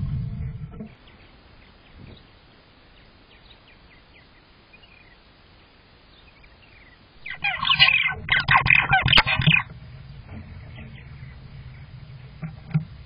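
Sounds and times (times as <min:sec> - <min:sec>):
faint bird chirps: 0:00.4 - 0:12.4
bird rapid calls: 0:06.4 - 0:09.7.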